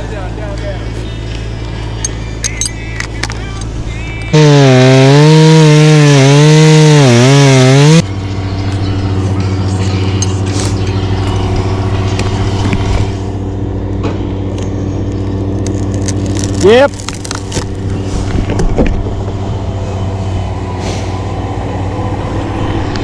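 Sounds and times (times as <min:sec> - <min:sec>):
quieter engine hum: 0:00.0 - 0:23.0
chainsaw running at full throttle: 0:04.3 - 0:08.0.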